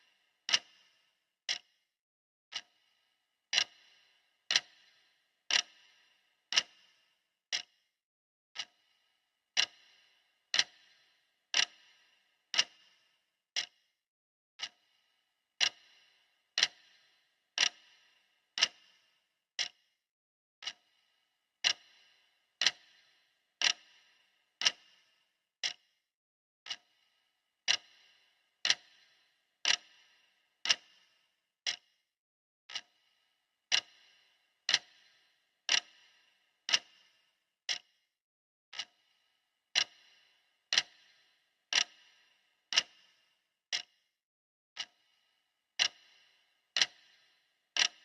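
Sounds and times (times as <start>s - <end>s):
clock ticking: 0.0s - 0.9s, 1.5s - 1.7s, 2.5s - 2.8s, 3.5s - 7.7s, 8.6s - 8.8s, 9.5s - 13.0s, 14.6s - 14.8s, 15.6s - 19.0s, 20.6s - 20.9s, 21.6s - 25.0s, 25.6s - 25.8s, 26.7s - 27.0s, 27.6s - 32.0s, 32.7s - 33.0s, 33.7s - 37.9s, 38.7s - 39.1s, 39.7s - 44.0s, 44.8s - 45.2s, 45.8s - 48.0s.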